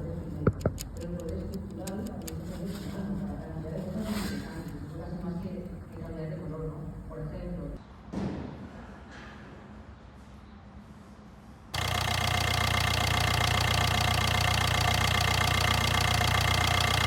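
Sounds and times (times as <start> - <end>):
diesel engine idling: 11.8 - 17.0.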